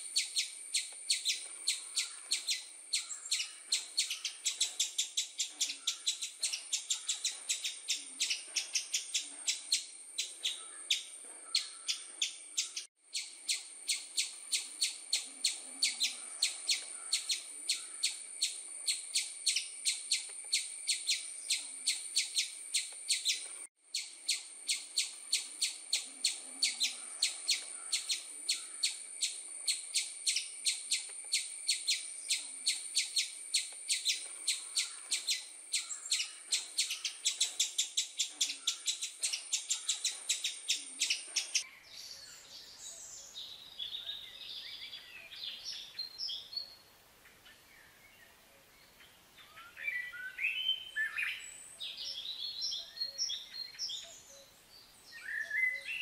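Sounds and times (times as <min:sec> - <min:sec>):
small bird chirping rapidly: 0:00.0 - 0:41.7.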